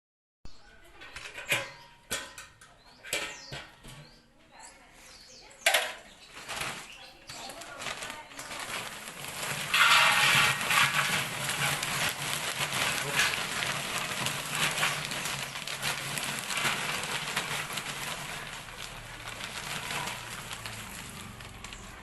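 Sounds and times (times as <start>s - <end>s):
chips tumbling in mixer: 6.3s - 22.0s.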